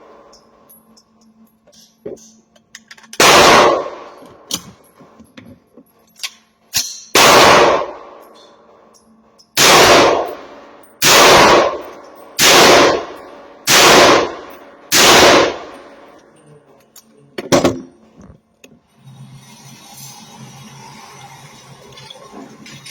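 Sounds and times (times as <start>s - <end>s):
rifle shots: 3.2s - 4.2s, 7.2s - 8.2s, 9.6s - 16.0s.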